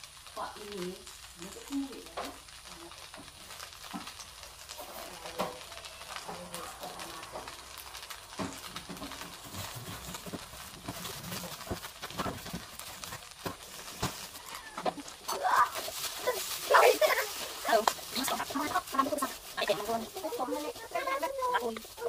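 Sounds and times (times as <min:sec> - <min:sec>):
wok sizzling with crackling pops: 0:00.0 - 0:22.0.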